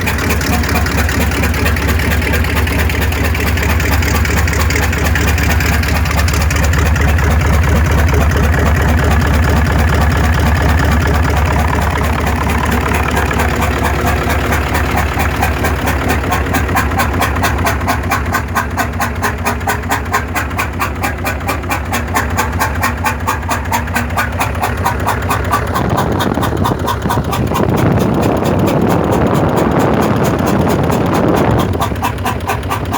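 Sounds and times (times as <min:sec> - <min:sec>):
car engine idling: 0:00.0 - 0:32.9.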